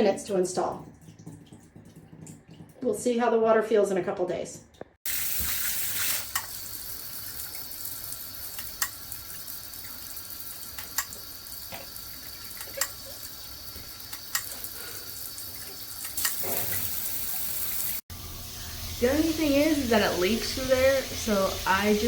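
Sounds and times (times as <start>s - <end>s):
water drips and splashes: 0.0s - 3.1s, 4.6s - 18.0s
shower head spraying water: 5.1s - 22.0s.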